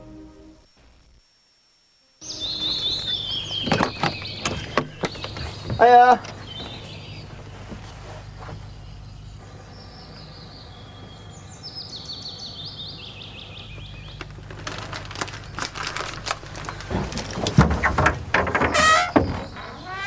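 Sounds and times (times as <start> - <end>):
low steady hum: 0.0 - 20.0
small birds chirping: 2.2 - 17.6, 18.9 - 20.0
crackles and rustling: 2.6 - 11.3, 13.0 - 20.0.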